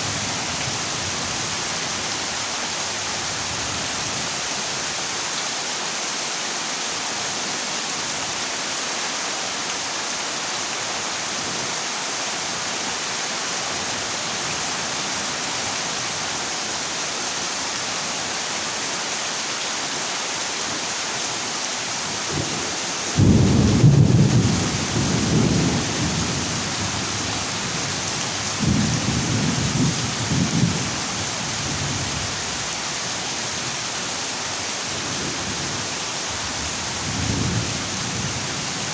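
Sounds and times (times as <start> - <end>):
heavy rain on a metal roof: 0.0 - 38.9
low rumble of thunder: 23.2 - 27.7.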